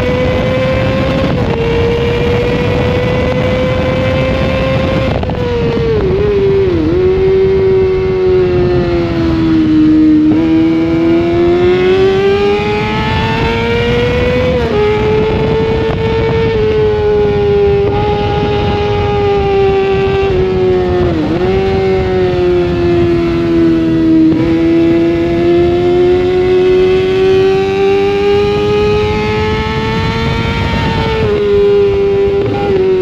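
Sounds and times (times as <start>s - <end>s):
motorcycle engine revving: 0.0s - 33.0s
wind noise: 0.0s - 33.0s.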